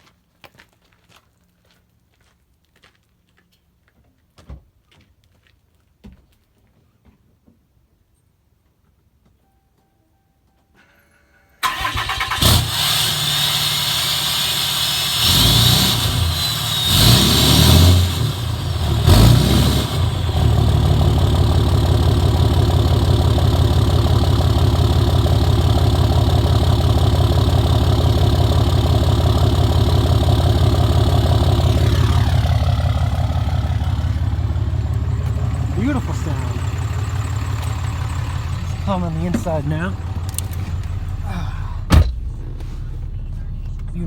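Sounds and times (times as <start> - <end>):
diesel engine revving and idling: 11.6 - 44.0.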